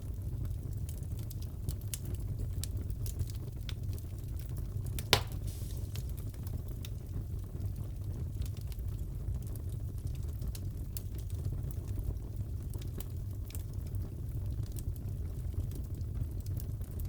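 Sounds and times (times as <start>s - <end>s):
fire crackling and popping: 0.0s - 17.0s
low rumble of fire: 0.0s - 17.0s.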